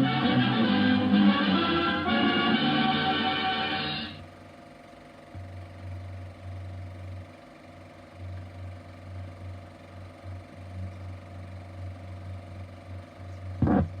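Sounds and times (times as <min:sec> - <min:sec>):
film projector humming: 0:00.0 - 0:14.0.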